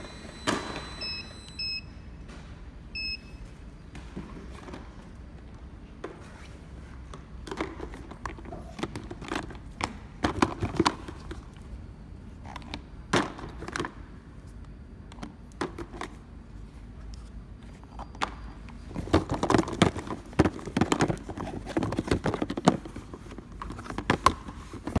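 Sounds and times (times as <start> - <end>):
labeling machine humming: 0.0 - 2.1.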